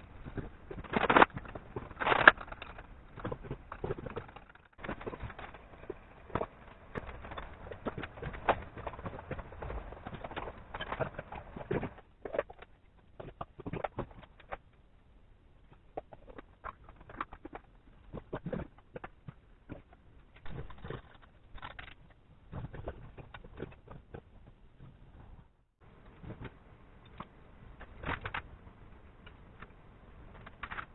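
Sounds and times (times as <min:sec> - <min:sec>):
hand tools clicking and knocking: 0:00.0 - 0:14.8.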